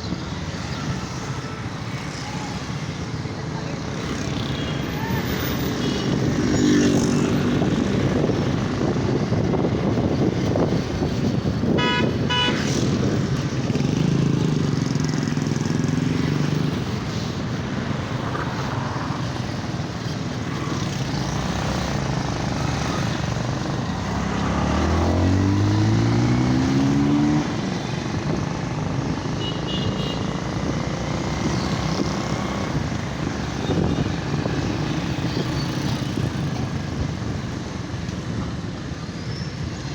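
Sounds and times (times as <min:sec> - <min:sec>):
horn honk: 0:11.7 - 0:12.8.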